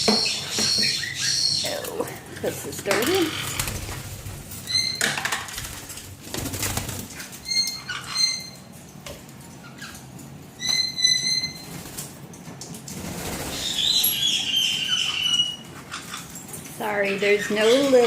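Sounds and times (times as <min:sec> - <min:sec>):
high bird chirps: 0:13.5 - 0:16.2.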